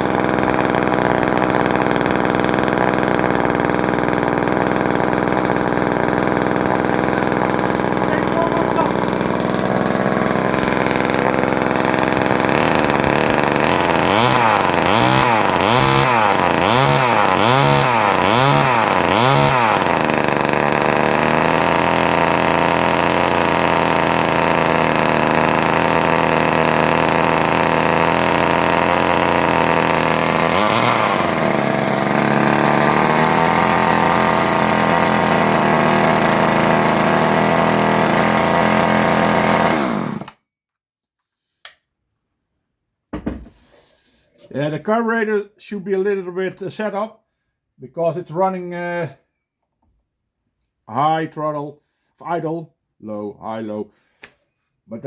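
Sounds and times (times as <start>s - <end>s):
chainsaw engine running: 0.0s - 40.4s.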